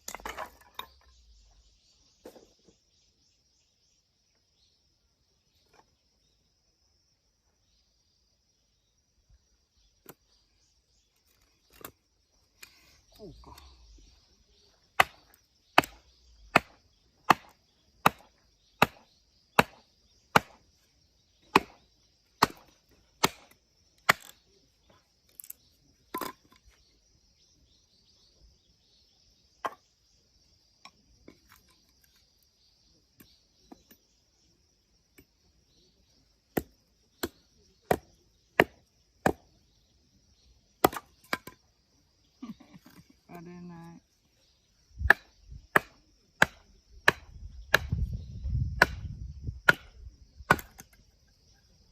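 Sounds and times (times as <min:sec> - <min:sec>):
blade striking firewood: 0:00.0 - 0:01.2, 0:14.9 - 0:20.7, 0:21.4 - 0:24.5, 0:25.4 - 0:26.7, 0:36.5 - 0:39.6, 0:40.8 - 0:41.6, 0:45.0 - 0:51.1.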